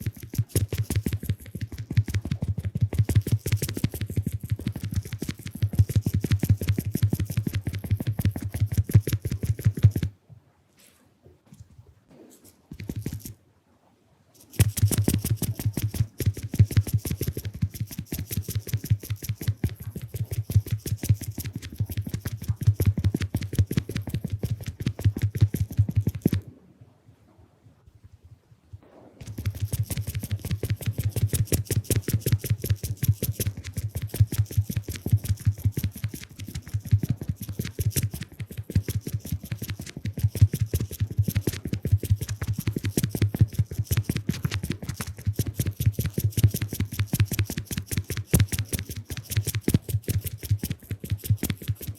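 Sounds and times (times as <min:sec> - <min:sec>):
sponge tapping on microphone: 0:00.0 - 0:10.1, 0:14.5 - 0:26.4.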